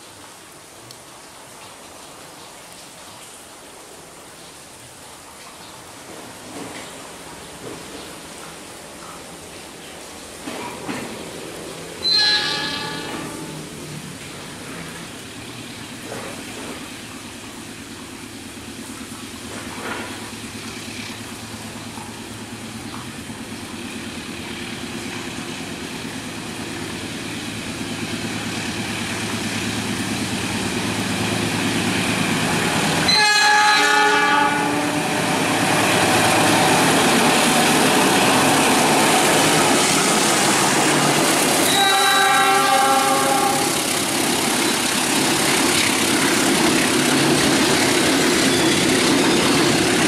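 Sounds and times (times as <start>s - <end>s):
wheels rumbling on rails: 6.0s - 50.0s
locomotive engine drone: 10.5s - 50.0s
train horn blast: 12.0s - 13.9s, 33.0s - 37.4s, 41.6s - 43.9s.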